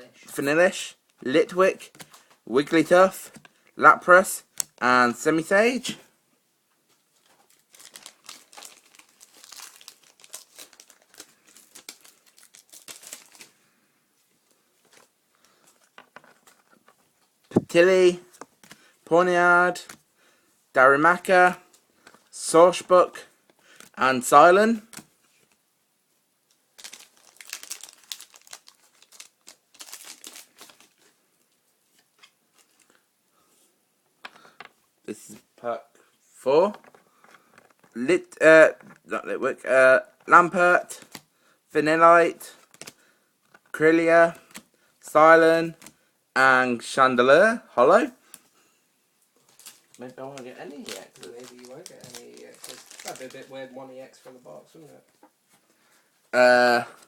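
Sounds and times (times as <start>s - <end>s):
foil wrapper crinkling: 7.2s - 13.6s, 26.8s - 31.1s, 49.4s - 53.6s.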